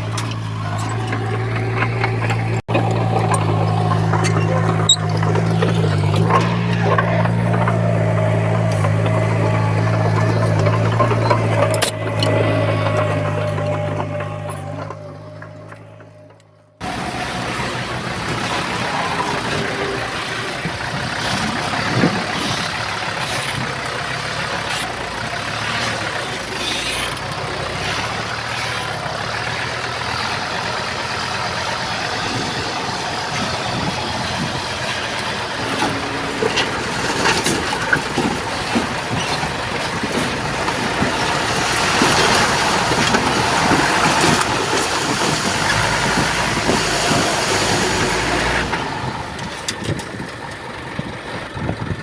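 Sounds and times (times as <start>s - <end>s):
metallic clanks: 0.0s - 17.5s
heavy machinery engines running: 0.0s - 52.0s.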